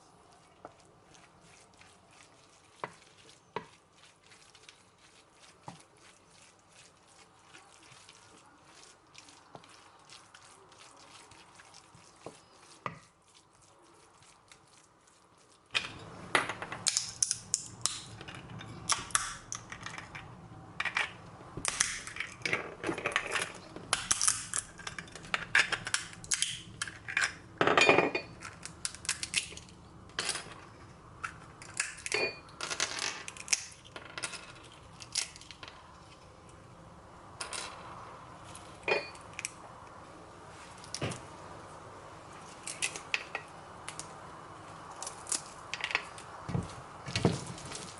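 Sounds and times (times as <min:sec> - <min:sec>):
utensils and dishes clinking: 0:38.8 - 0:39.3.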